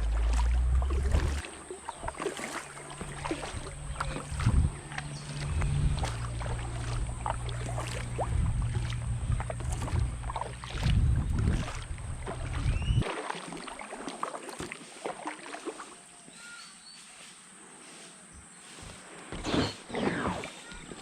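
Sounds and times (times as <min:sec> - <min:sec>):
wind rumble on microphone: 0:00.0 - 0:01.4, 0:03.0 - 0:13.0
paddle water splashing and dripping: 0:00.0 - 0:16.6.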